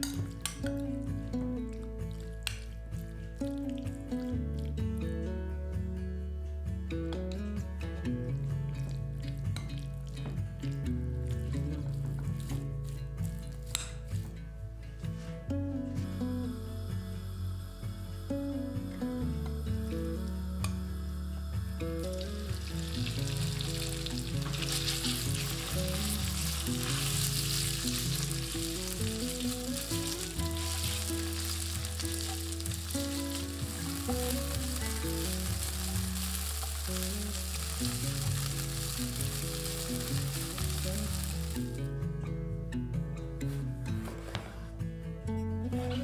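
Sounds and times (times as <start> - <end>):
chicken sizzling in oil: 21.9 - 41.8
spatula moving food in pan: 22.0 - 41.8.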